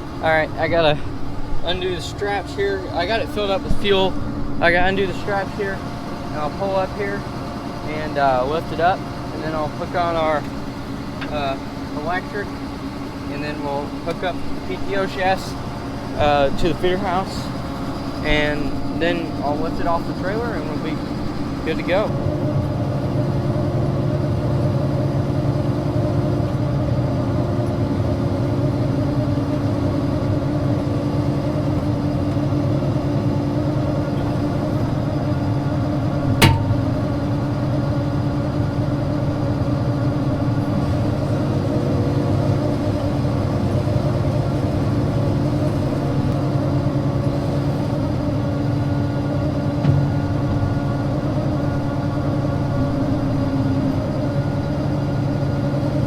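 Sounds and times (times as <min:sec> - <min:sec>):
diesel engine running: 0:00.0 - 0:56.0
sharp metallic knock: 0:36.4 - 0:37.0.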